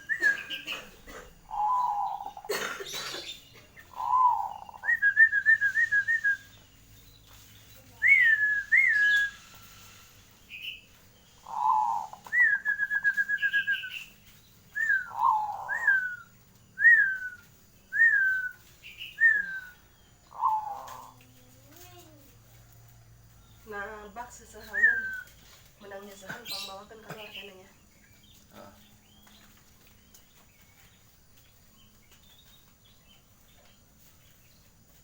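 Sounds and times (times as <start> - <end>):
zebra dove cooing and trilling: 0.0 - 2.7, 3.8 - 5.4, 11.4 - 12.8, 14.8 - 16.2, 19.2 - 22.4.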